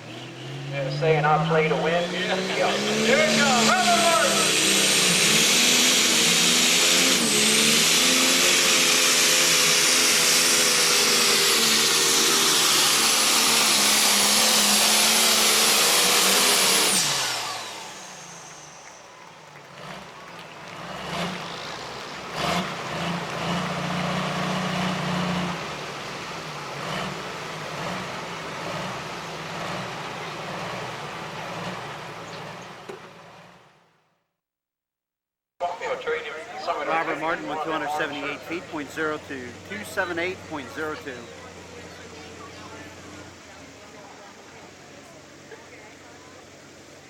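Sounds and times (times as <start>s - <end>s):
quieter low engine running: 0.0s - 33.8s, 35.6s - 47.0s
tractor engine running flat out: 0.0s - 33.8s, 35.6s - 47.0s
engine knocks: 8.8s - 33.6s.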